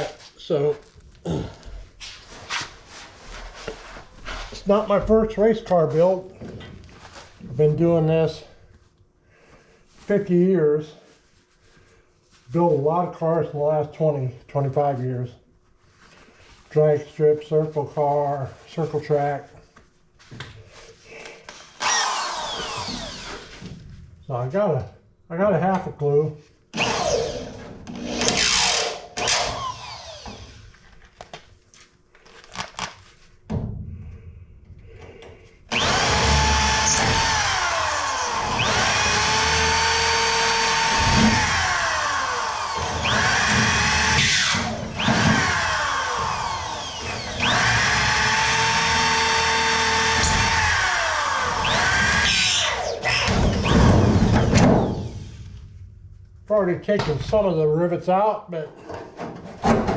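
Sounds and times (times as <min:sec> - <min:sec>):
power drill drilling metal: 0:21.5 - 0:23.6, 0:26.7 - 0:30.7, 0:35.7 - 0:55.5.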